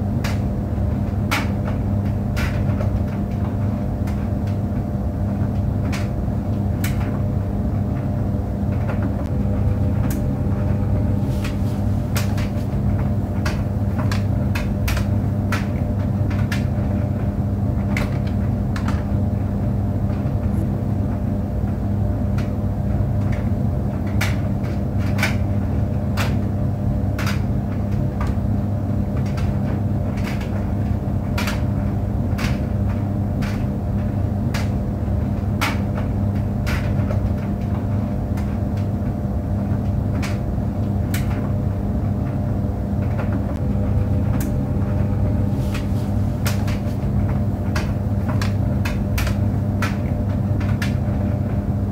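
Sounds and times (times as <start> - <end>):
clothes dryer humming: 0.0 - 51.9
dryer drum knocking: 0.0 - 51.9.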